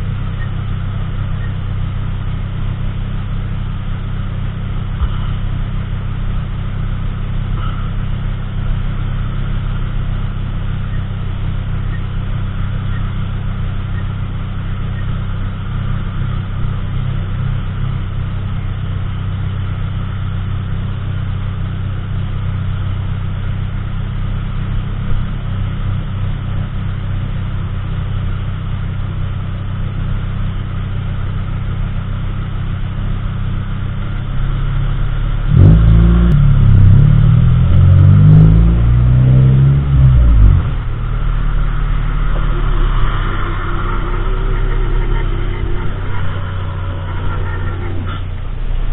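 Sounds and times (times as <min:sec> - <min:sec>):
car engine and road rumble: 0:00.0 - 0:48.9
louder sound with shifting pitch: 0:35.5 - 0:48.9.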